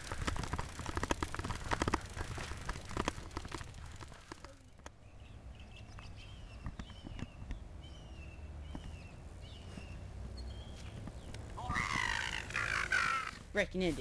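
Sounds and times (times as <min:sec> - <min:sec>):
bird chirping: 0:04.7 - 0:13.4.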